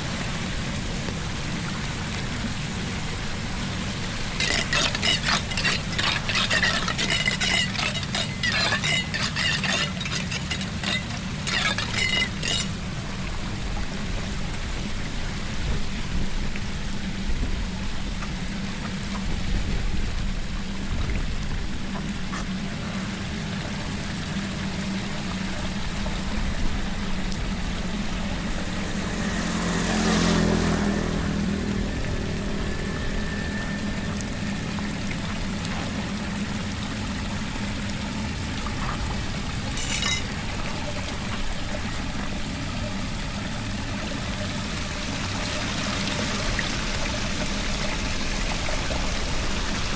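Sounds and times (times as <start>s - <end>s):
water pouring down storm drain: 0.0s - 17.0s
sharp scrapes: 4.3s - 12.8s, 39.7s - 40.4s.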